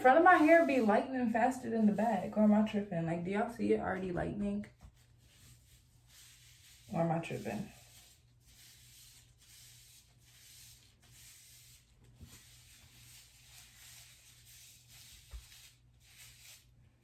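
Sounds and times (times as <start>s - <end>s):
hands rubbing hair: 0.0s - 1.1s.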